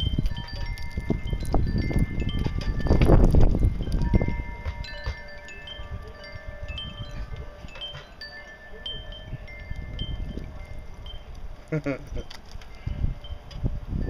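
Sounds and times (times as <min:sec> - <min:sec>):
wind chimes ringing: 0:00.0 - 0:14.0
wind rumble on microphone: 0:00.0 - 0:14.0.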